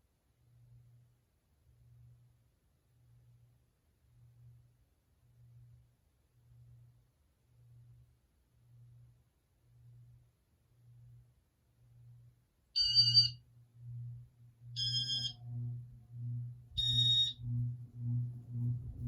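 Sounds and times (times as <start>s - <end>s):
low pulsing motor hum: 12.0s - 19.0s
short electronic beeps: 12.8s - 13.4s, 14.8s - 15.4s, 16.8s - 17.4s.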